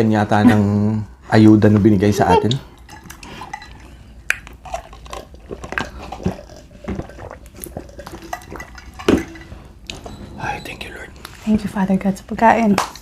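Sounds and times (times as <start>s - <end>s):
person chewing: 2.4s - 9.4s.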